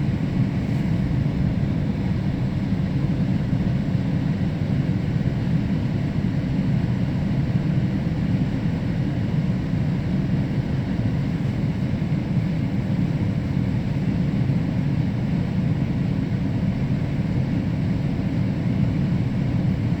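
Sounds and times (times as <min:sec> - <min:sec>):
train low rumble: 0:00.0 - 0:14.8.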